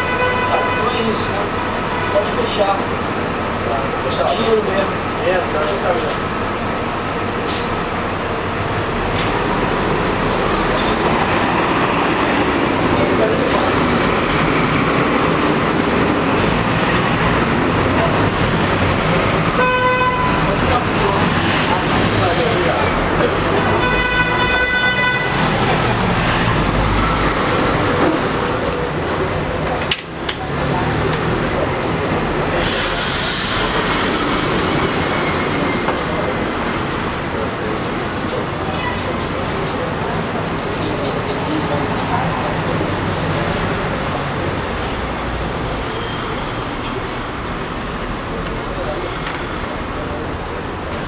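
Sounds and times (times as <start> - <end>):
vehicle horn: 0.0 - 2.6, 19.5 - 20.9, 23.7 - 26.2
road traffic noise: 0.0 - 51.0.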